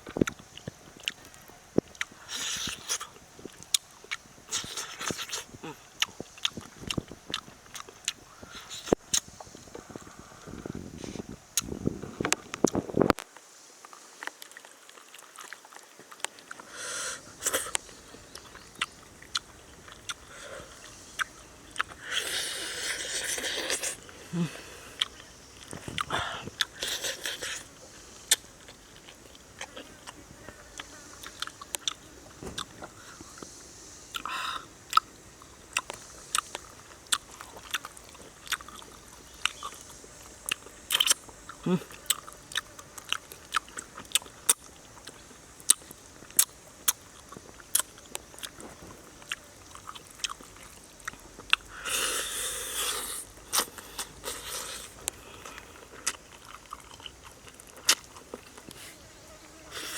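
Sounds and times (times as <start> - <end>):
person chewing and crunching: 0.0 - 10.1, 13.9 - 16.7, 17.4 - 33.5, 34.1 - 58.9
faint steady hiss: 0.0 - 59.9
person chewing with sharp clicks: 28.3 - 30.2, 35.7 - 48.6, 52.7 - 58.8.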